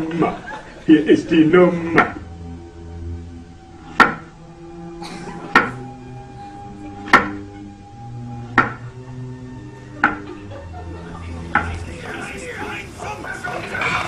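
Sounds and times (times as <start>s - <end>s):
music with held chords: 0.0s - 14.0s
sharp ringing knocks: 3.9s - 4.3s, 8.5s - 8.8s.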